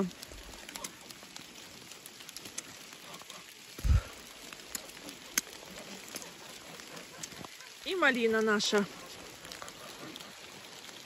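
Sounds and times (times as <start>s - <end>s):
light rain hiss: 0.0s - 11.0s
raindrops ticking on phone: 0.0s - 11.0s.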